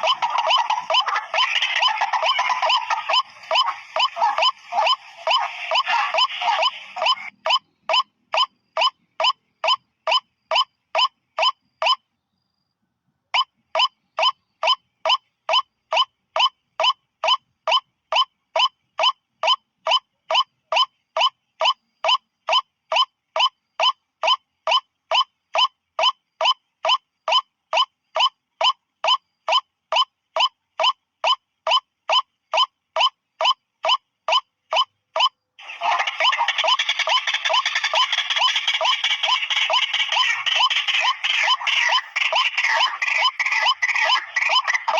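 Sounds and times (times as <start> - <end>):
harsh dense bird calling: 0.0 - 8.0, 35.6 - 44.9
waterhen repeated call: 0.0 - 8.9, 28.6 - 44.9.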